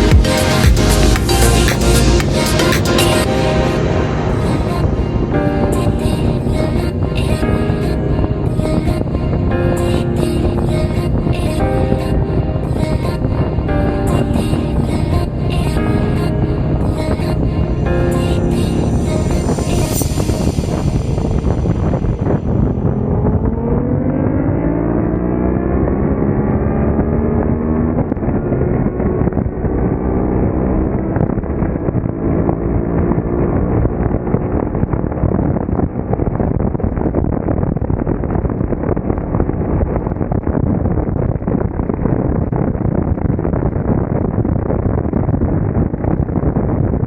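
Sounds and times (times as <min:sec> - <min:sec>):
engine speeding up: 0:00.0 - 0:07.1, 0:14.3 - 0:36.4
wind buffeting microphone: 0:03.0 - 0:47.0.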